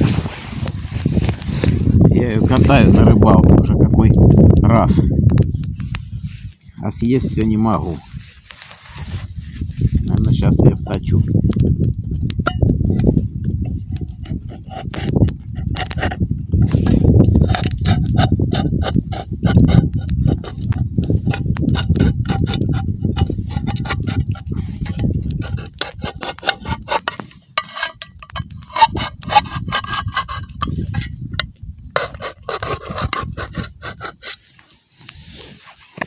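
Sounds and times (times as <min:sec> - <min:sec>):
tin can being cut open: 0:12.4 - 0:34.7.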